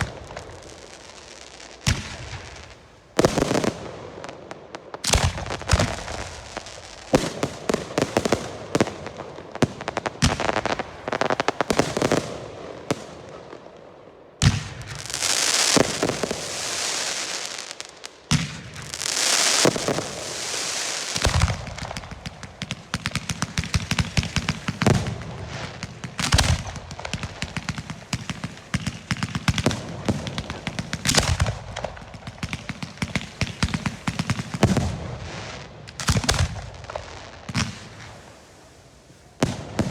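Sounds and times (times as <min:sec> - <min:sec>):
fireworks hissing: 0:00.0 - 0:12.2, 0:14.9 - 0:39.9
firework bangs and crackling: 0:00.0 - 0:39.9
deep firework booms: 0:21.1 - 0:35.3, 0:39.3 - 0:39.9.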